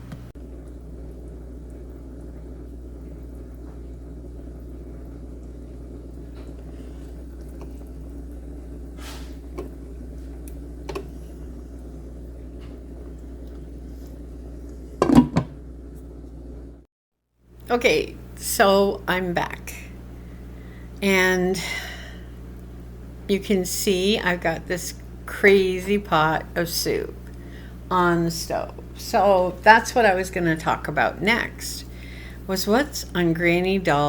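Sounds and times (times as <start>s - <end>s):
knocks or thumps: 15.0s - 15.6s
low hum of room tone: 17.5s - 34.0s.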